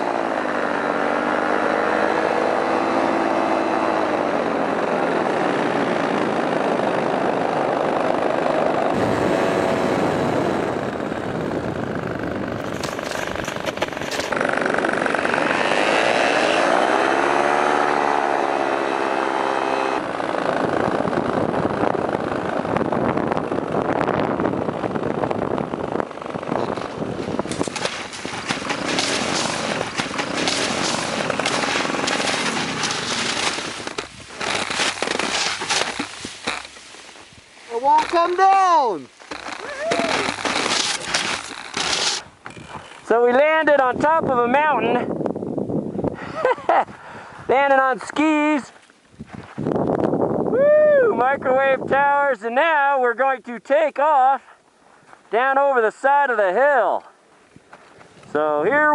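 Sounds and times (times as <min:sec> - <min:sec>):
paramotor engine and propeller: 0:00.0 - 0:37.1
rough crackling noise: 0:03.9 - 0:18.0, 0:19.0 - 0:44.8.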